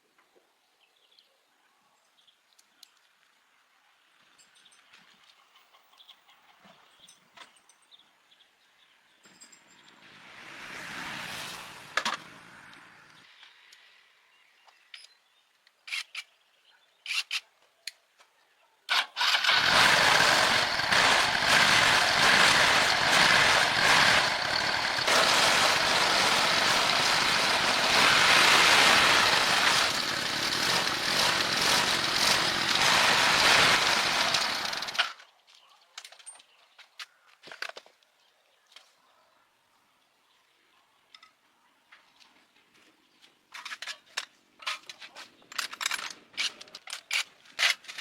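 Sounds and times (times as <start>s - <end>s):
loud steady rushing noise: 19.7s - 34.9s.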